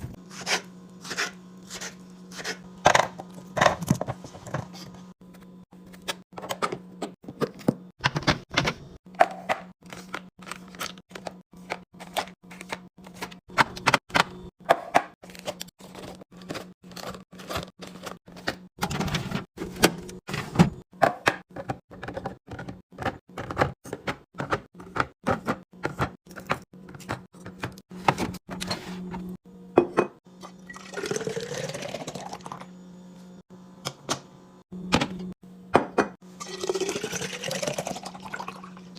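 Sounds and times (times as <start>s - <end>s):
liquid pouring into container: 30.6s - 32.6s, 36.4s - 38.9s.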